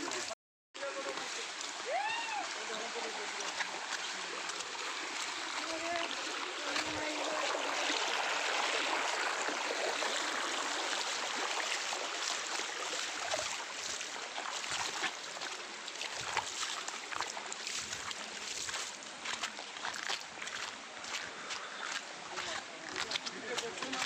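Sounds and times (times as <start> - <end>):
waterfall rushing: 0.9 - 13.8.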